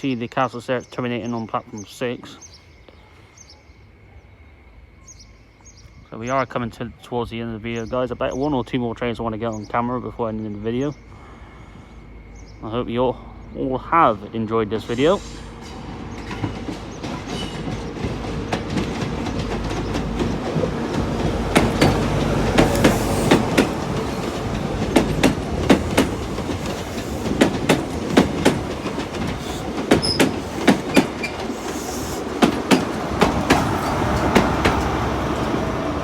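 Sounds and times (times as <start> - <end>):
steady train hum: 7.5 - 36.0
train wheels clacking over rail joints: 15.6 - 35.6.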